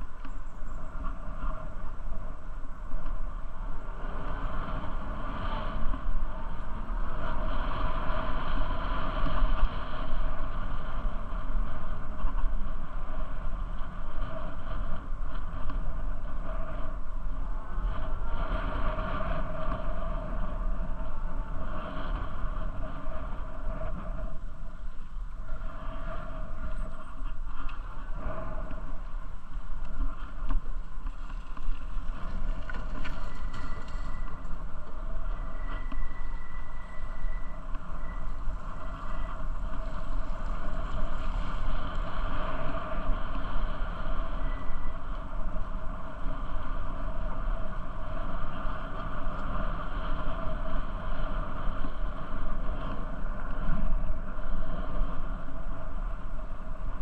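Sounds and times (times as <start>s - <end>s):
bicycle riding rumble: 0.0s - 57.0s
wind buffeting microphone: 0.0s - 57.0s
faint high whistle-like tone: 32.8s - 40.6s, 44.0s - 45.4s.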